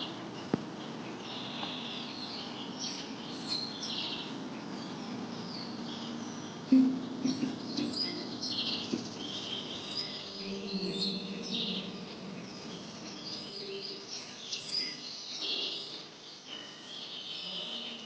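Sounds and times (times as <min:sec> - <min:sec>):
birds chirping and calling: 0:01.1 - 0:17.7.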